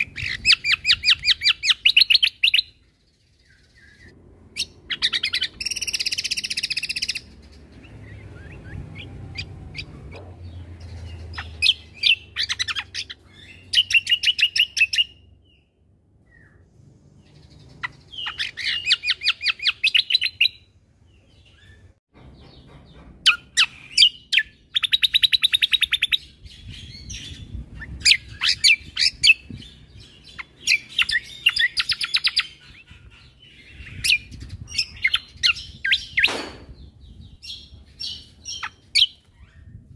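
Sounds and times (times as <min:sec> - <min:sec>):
bird singing fast high trills: 0:03.4 - 0:09.9.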